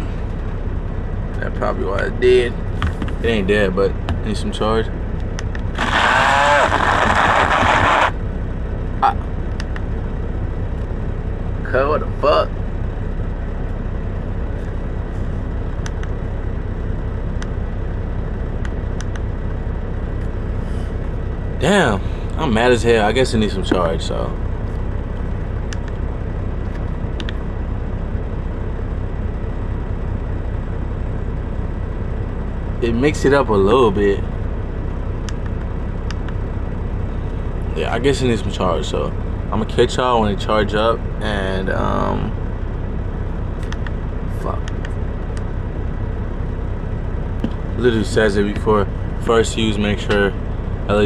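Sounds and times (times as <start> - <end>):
semi truck idling: 0.0 - 51.0
click: 9.6 - 9.9, 15.8 - 16.1, 18.6 - 19.3, 25.7 - 26.0, 26.7 - 27.4, 35.2 - 36.4, 43.6 - 44.0, 44.6 - 45.5.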